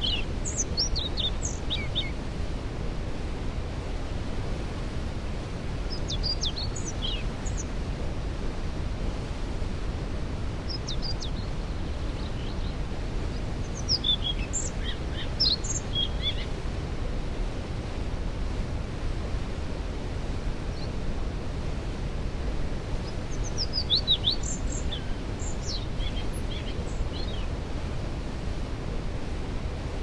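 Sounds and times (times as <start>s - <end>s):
songbirds chirping: 0.0s - 2.6s, 5.5s - 7.9s, 10.6s - 16.8s, 20.0s - 21.1s, 22.7s - 30.0s.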